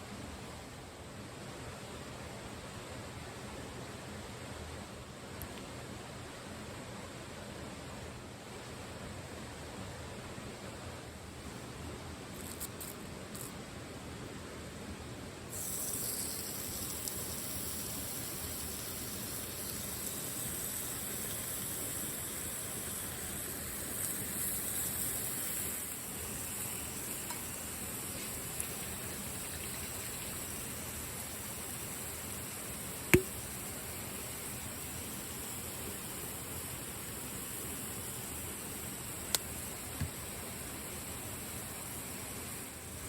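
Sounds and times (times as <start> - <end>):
rain: 15.5 - 40.0
sharp click: 33.1 - 33.4.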